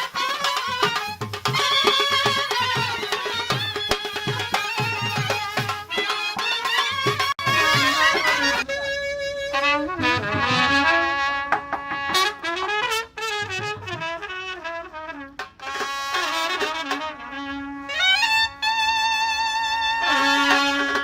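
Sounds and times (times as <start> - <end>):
drum strokes: 0.0 - 9.0, 9.9 - 17.4
wind instrument melody: 0.0 - 21.0.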